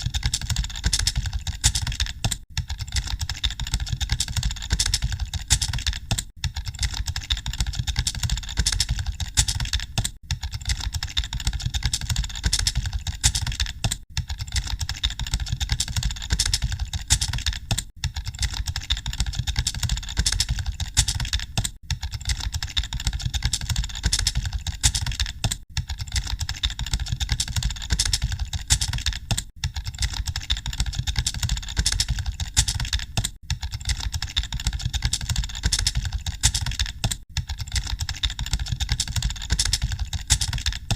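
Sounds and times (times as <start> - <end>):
keyboards clattering: 0.0 - 40.9.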